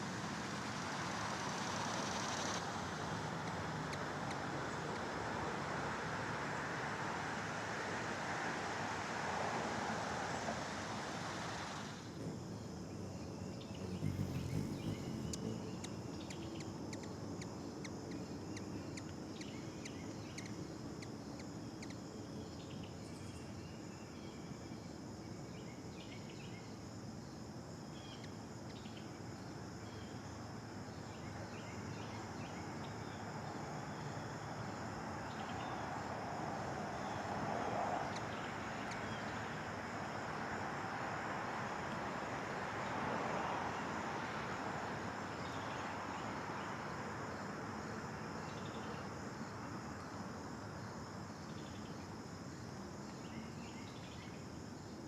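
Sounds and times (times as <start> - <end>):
insects droning: 0.0 - 55.0
faint bird chirps: 12.2 - 21.1.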